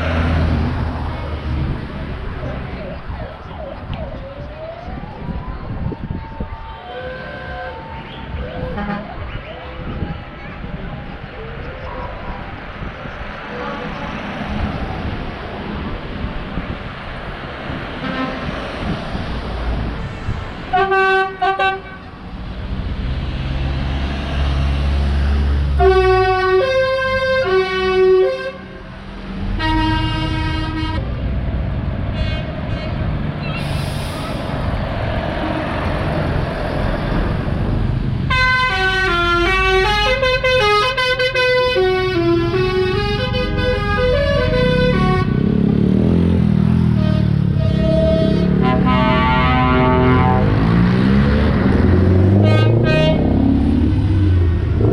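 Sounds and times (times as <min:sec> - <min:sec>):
road traffic and engine rumble: 0:00.0 - 0:54.9
vehicle horns tooting: 0:06.5 - 0:09.3, 0:18.0 - 0:18.5, 0:20.7 - 0:22.1, 0:25.8 - 0:28.7, 0:29.6 - 0:31.1, 0:32.1 - 0:33.6, 0:38.3 - 0:45.5, 0:46.9 - 0:50.6, 0:52.4 - 0:53.3
horn playing changing notes: 0:38.3 - 0:45.5, 0:46.9 - 0:50.8, 0:52.3 - 0:53.4.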